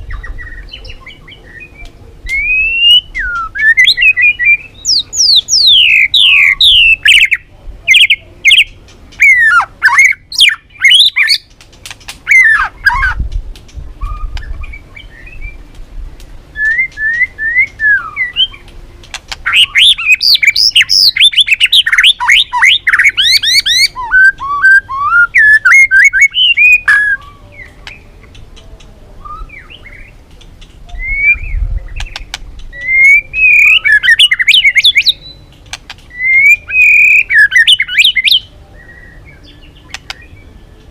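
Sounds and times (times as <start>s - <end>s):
songbird singing whistled trills: 0.0s - 11.5s, 14.0s - 15.6s, 16.5s - 18.7s, 19.4s - 28.4s, 29.2s - 30.2s, 30.9s - 40.9s.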